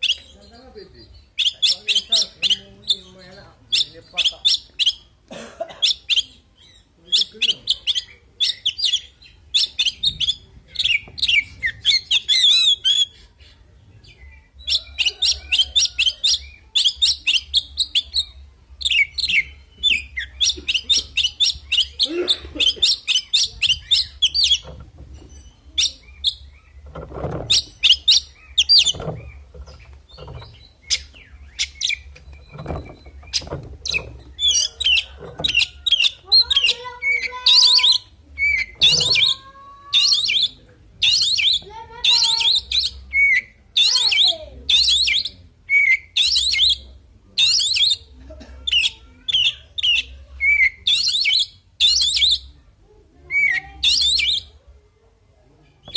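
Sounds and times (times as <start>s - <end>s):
bird singing chirps and whistles: 5.9s - 13.3s, 14.0s - 39.4s, 40.0s - 48.1s, 48.8s - 52.5s, 53.4s - 54.5s.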